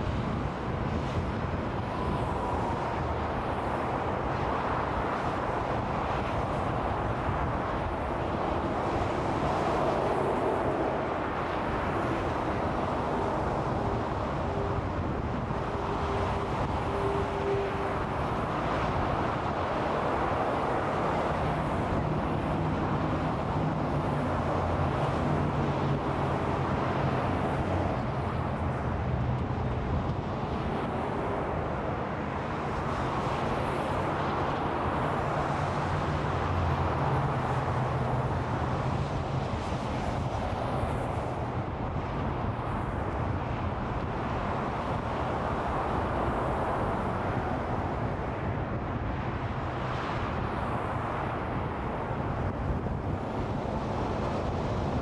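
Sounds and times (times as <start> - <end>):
freeway traffic: 0.0 - 55.0.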